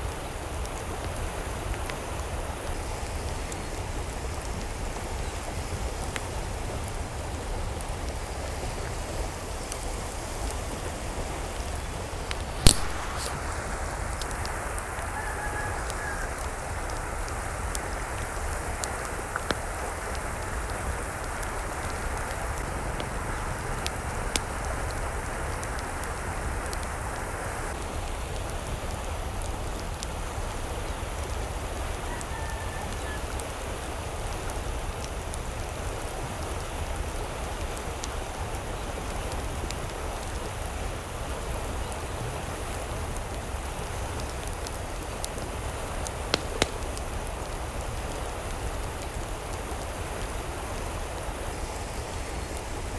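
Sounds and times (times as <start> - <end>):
steady rain: 0.0 - 52.9
raindrops ticking sharply: 11.1 - 27.0
distant chicken calling: 15.0 - 16.5, 32.1 - 33.3.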